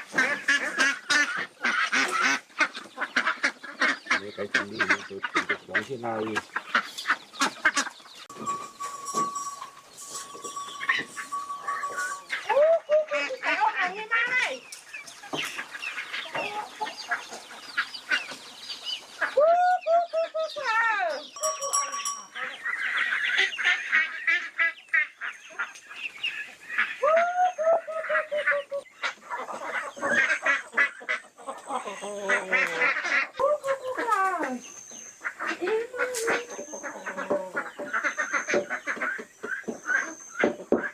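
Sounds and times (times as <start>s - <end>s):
farm animals calling: 0.0s - 19.4s, 20.2s - 40.9s
thin steady high tone: 8.3s - 12.6s, 21.4s - 23.4s.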